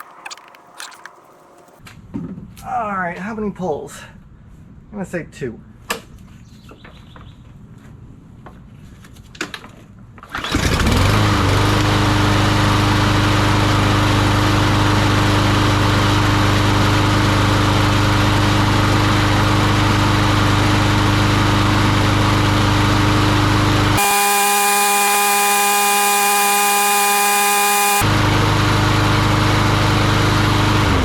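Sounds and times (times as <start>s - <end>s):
pull starter cord: 10.2s - 11.9s
lawn mower engine running: 10.3s - 31.0s.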